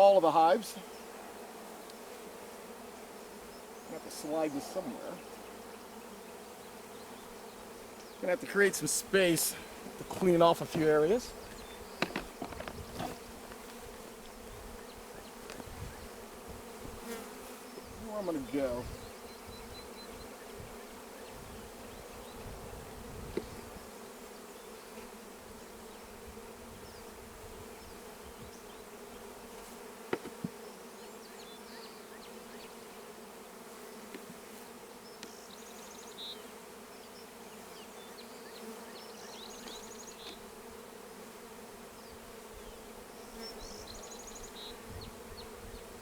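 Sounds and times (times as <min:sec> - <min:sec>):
bees buzzing: 0:00.0 - 0:46.0.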